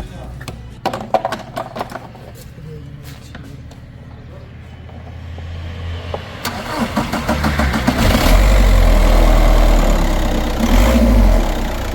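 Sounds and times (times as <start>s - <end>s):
diesel engine running: 3.5s - 11.9s
starter motor cranking engine: 6.4s - 11.9s.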